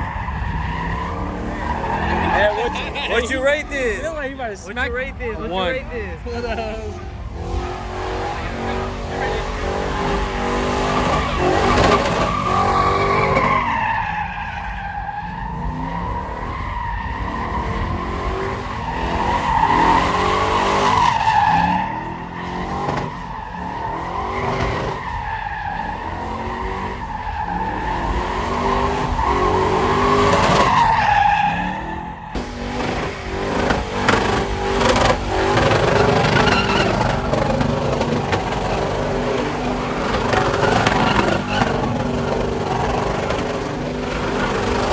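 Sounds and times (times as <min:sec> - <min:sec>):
tyres squealing: 0:00.8 - 0:05.8, 0:08.2 - 0:14.3, 0:32.2 - 0:44.9
engine noise: 0:32.0 - 0:44.9.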